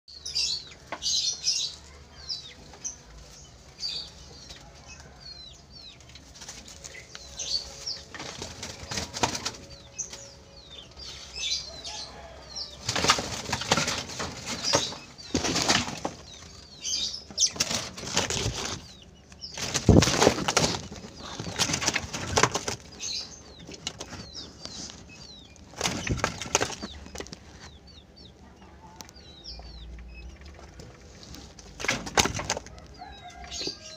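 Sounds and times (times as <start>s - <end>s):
bird wings flapping: 19.6s - 22.9s, 25.7s - 26.9s.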